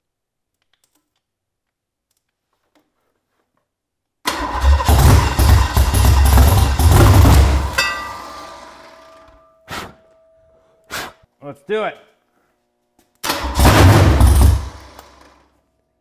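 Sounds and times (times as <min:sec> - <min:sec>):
starter motor cranking: 0:04.3 - 0:09.3, 0:13.2 - 0:15.4
engine running loud and uneven: 0:04.5 - 0:09.2.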